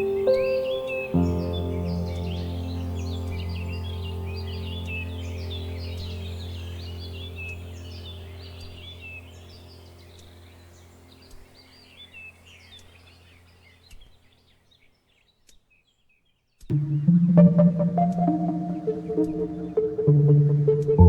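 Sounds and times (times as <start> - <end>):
music: 0.0 - 9.2, 16.7 - 21.0
small birds chirping: 0.0 - 21.0
low steady drone: 1.2 - 11.3, 16.7 - 21.0.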